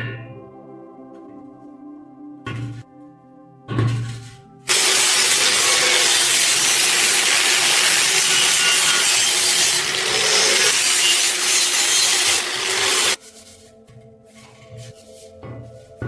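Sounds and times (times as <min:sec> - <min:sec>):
power tool grinding steel: 0:04.7 - 0:13.2.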